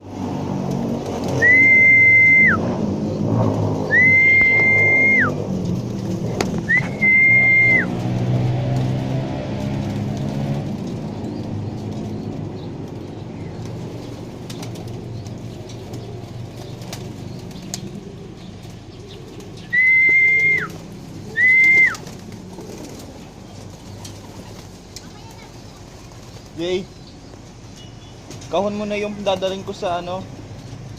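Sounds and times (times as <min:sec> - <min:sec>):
wing flaps: 0:00.0 - 0:27.0
pigeons cooing: 0:00.0 - 0:29.3
loud whistled notes: 0:01.4 - 0:02.7, 0:03.9 - 0:05.4, 0:06.6 - 0:08.0, 0:19.7 - 0:20.7, 0:21.3 - 0:22.0.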